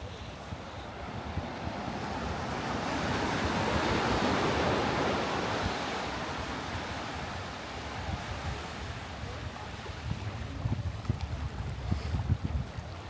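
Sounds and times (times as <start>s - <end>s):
wind buffeting microphone: 9.2s - 13.0s.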